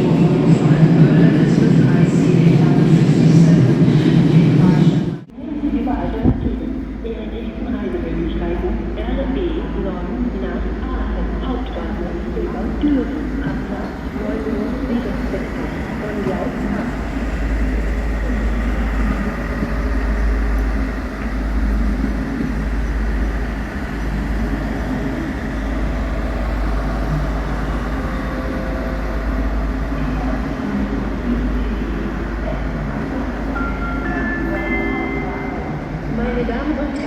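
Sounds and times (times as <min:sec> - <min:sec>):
train rumbling: 0:00.0 - 0:37.0.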